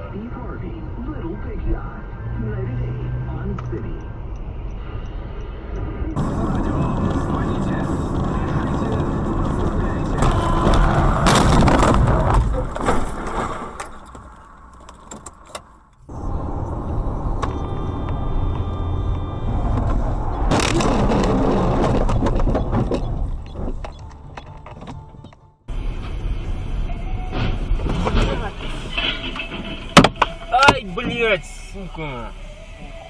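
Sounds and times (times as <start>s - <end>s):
car engine and road noise: 0.0s - 33.0s
loud crashing and clattering: 6.6s - 14.1s.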